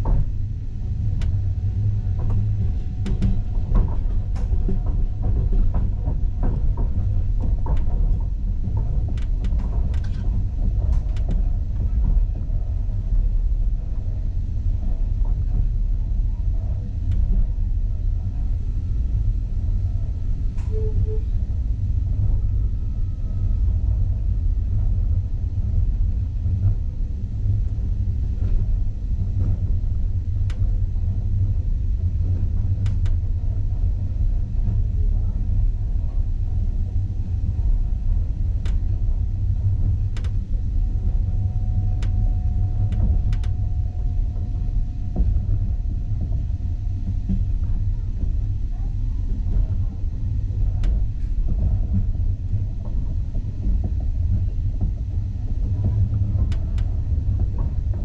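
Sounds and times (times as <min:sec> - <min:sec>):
train wheels rumbling on track: 0:00.0 - 0:58.0
sharp clicks and knocks: 0:40.1 - 0:40.5, 0:41.9 - 0:43.6.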